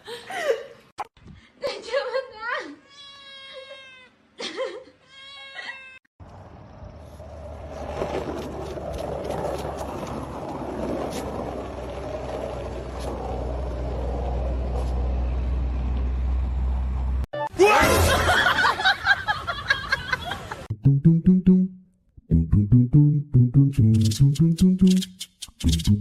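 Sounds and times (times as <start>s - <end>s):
cat meowing: 2.8s - 4.1s, 5.1s - 6.0s.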